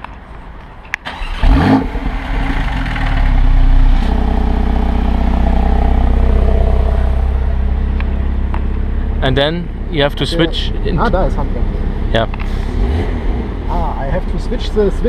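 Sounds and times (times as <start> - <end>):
car engine starting and idling: 1.0 - 15.0.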